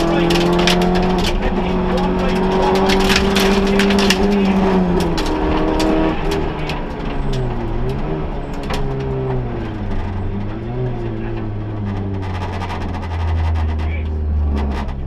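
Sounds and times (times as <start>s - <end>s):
car engine at high revs: 0.0s - 15.0s
sharp clicks and rattles: 0.0s - 15.0s.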